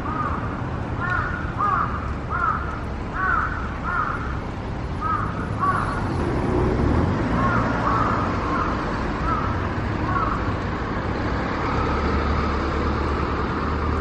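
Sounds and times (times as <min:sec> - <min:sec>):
bird calling: 0:07.4 - 0:10.5.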